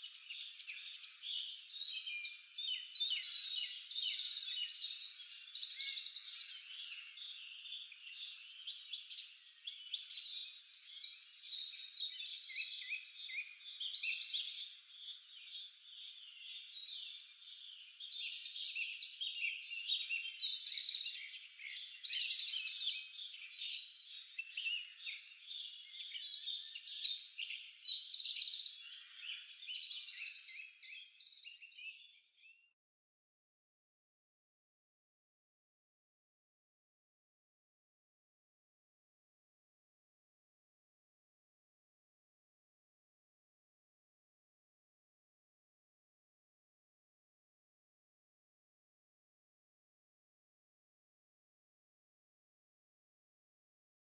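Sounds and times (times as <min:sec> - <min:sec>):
small birds chirping: 0:00.0 - 0:32.8.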